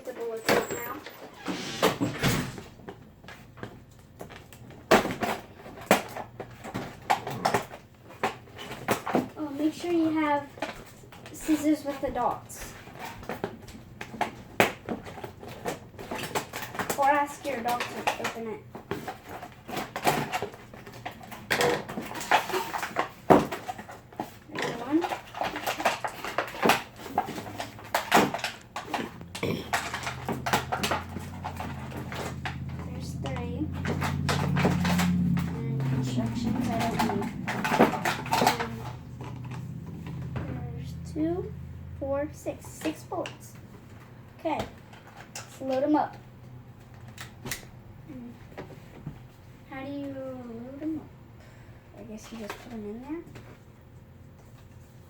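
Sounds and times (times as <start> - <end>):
steady low hum: 27.1 - 44.5.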